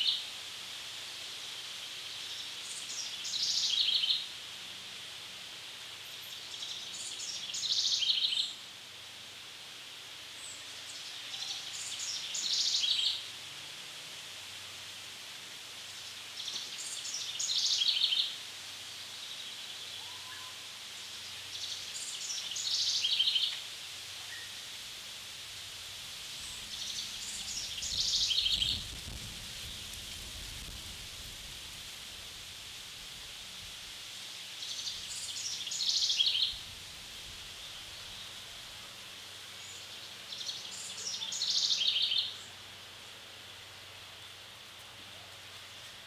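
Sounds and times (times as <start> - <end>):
songbird singing: 0.0 - 0.3, 1.5 - 4.8, 5.9 - 8.7, 10.3 - 13.4, 15.6 - 24.8, 26.3 - 30.9, 34.4 - 46.0
faint woodland hiss: 0.0 - 46.0.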